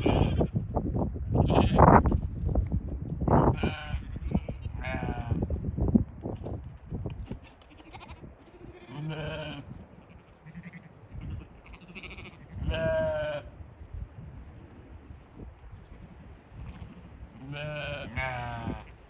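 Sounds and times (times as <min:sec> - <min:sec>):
sheep bleating: 0:00.0 - 0:00.6, 0:01.4 - 0:01.9, 0:03.4 - 0:05.5, 0:07.4 - 0:13.5, 0:16.6 - 0:19.0
wind rumble on microphone: 0:00.0 - 0:19.0.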